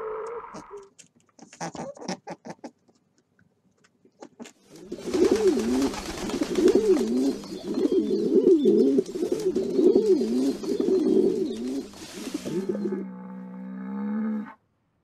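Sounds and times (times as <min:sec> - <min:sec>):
pigeons cooing: 0:04.8 - 0:13.2.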